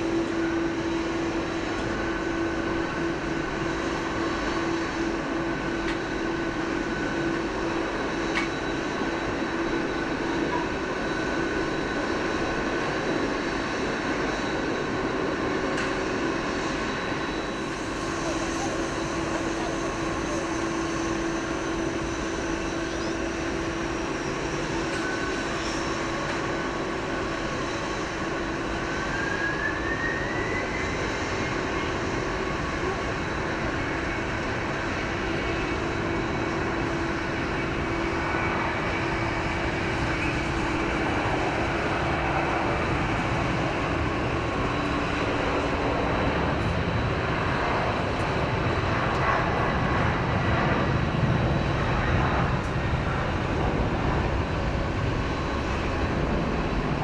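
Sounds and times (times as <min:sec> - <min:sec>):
jet engines whining: 0:00.0 - 0:57.0.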